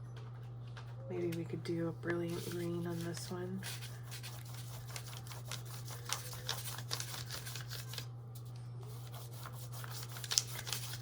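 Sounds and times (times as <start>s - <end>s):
crayon scratching on paper: 2.3s - 7.5s, 8.9s - 11.0s.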